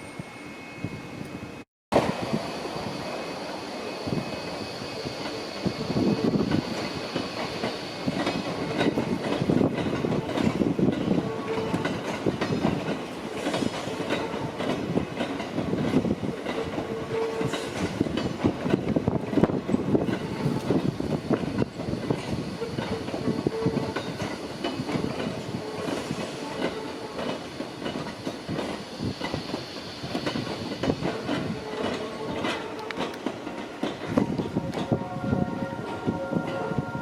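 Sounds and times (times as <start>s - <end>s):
train rolling on rails: 0.0s - 37.0s
clatter over rail joints: 30.1s - 35.0s.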